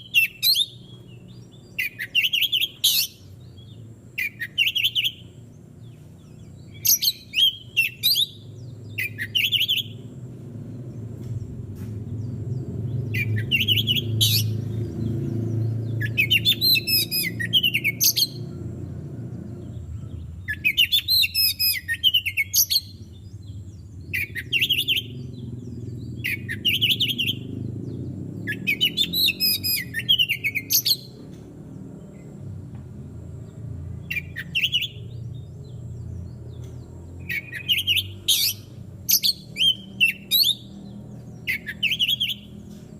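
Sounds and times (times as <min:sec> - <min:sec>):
bird singing whistles: 0:00.0 - 0:05.3, 0:06.7 - 0:10.0, 0:13.1 - 0:14.7, 0:15.8 - 0:18.5, 0:20.0 - 0:23.3, 0:24.0 - 0:25.4, 0:26.2 - 0:27.6, 0:28.4 - 0:31.2, 0:34.1 - 0:35.2, 0:37.2 - 0:40.8, 0:41.4 - 0:42.6
steady low rumble: 0:08.4 - 0:21.1, 0:21.7 - 0:41.5.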